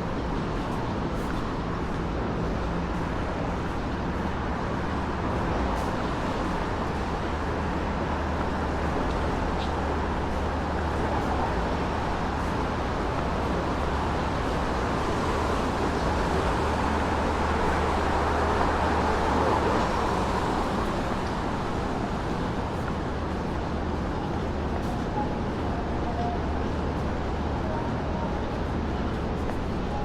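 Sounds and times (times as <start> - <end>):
traffic noise: 0.0 - 30.0.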